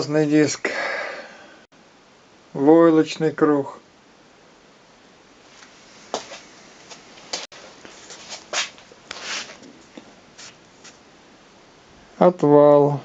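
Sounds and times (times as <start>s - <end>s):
scuffs and rustles: 5.5s - 11.0s.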